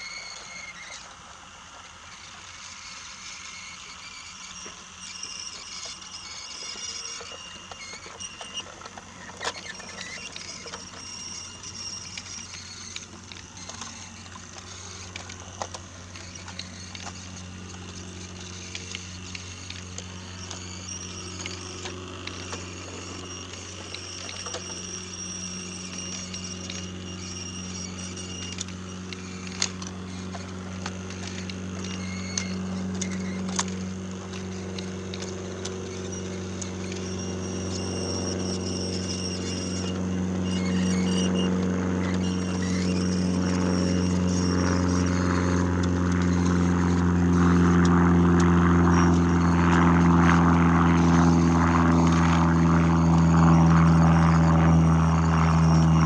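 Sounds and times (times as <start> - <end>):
toy train motor hum: 0.0 - 56.0.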